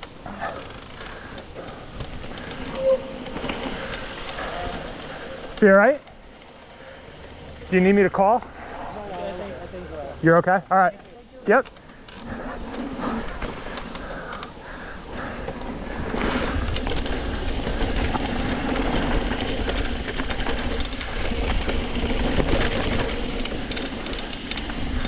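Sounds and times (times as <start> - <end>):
bike rattling: 0.0 - 25.0
bike tyres on dirt trail: 0.0 - 25.0.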